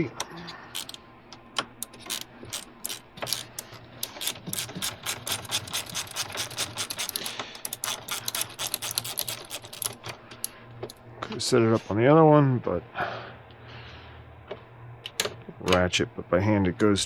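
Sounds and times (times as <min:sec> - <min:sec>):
hand ratchet clicking: 0:00.5 - 0:01.0, 0:01.6 - 0:11.0.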